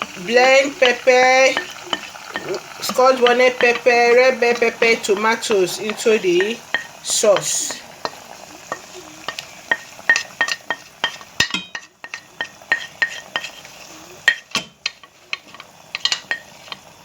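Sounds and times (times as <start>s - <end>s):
spoon scraping against a pot: 0.0s - 17.0s.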